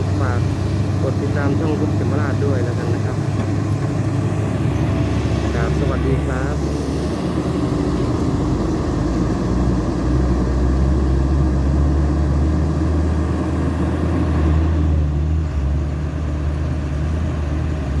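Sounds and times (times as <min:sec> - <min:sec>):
excavator diesel engine humming: 0:00.0 - 0:18.0.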